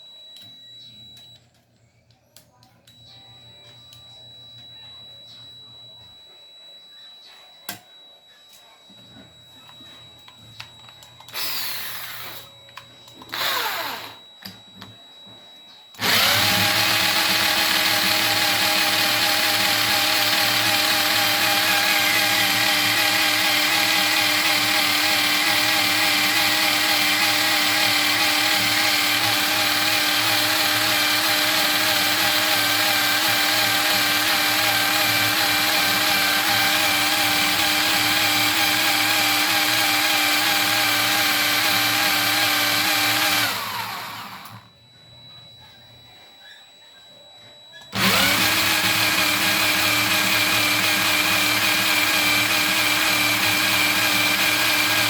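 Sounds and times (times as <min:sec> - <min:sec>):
electric drill whirring: 0:11.3 - 0:14.6, 0:16.0 - 0:44.7, 0:47.9 - 0:55.0.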